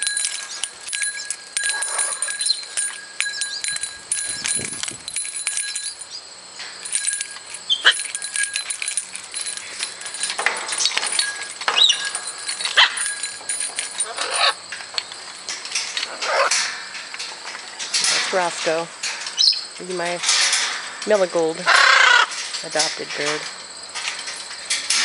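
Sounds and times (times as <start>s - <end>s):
parrots squawking: 14.0s - 14.6s, 21.7s - 22.3s.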